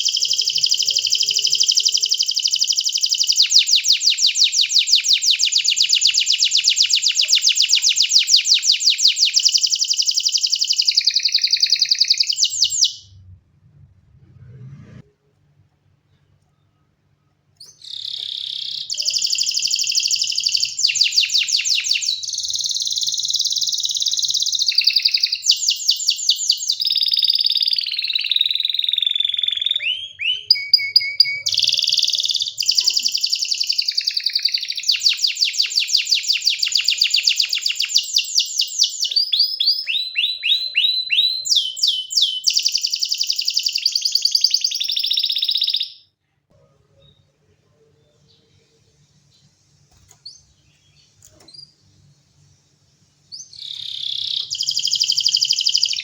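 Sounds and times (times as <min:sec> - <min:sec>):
canary singing trills: 0:00.0 - 0:13.2, 0:17.6 - 0:46.1, 0:53.2 - 0:56.0.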